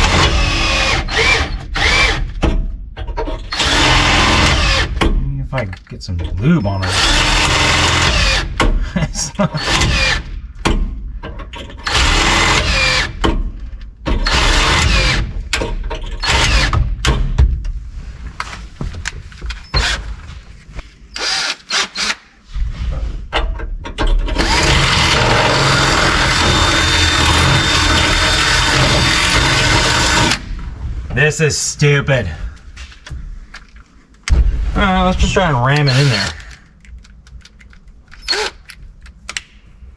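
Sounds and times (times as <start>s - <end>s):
power drill running: 0.0s - 2.3s, 3.5s - 5.0s, 6.8s - 8.6s, 9.6s - 10.3s, 11.8s - 13.2s, 14.2s - 15.3s, 21.1s - 22.2s, 24.4s - 30.5s, 35.9s - 36.5s, 38.2s - 38.6s.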